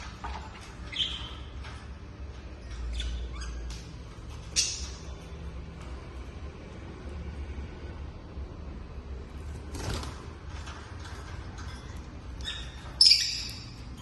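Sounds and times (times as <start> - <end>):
lovebirds chirping and squawking: 0.0 - 5.6, 10.5 - 14.0.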